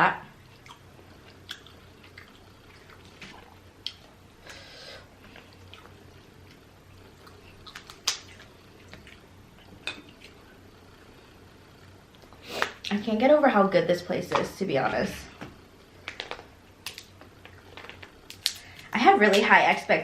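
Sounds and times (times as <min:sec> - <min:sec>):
seafood shells cracking: 0:07.7 - 0:09.0, 0:16.0 - 0:19.4.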